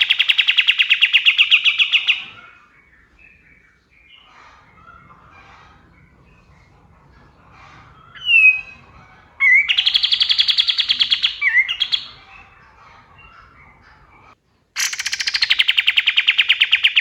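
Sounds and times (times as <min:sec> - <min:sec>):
songbird singing a rattling trill: 0:00.0 - 0:04.3, 0:06.0 - 0:12.6.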